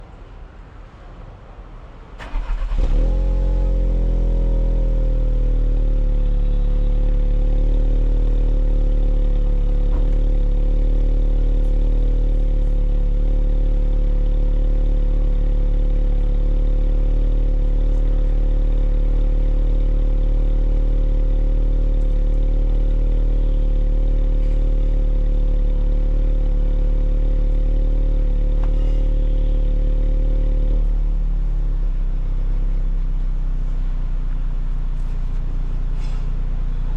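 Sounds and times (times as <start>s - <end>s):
car engine starting and idling: 2.1s - 36.9s.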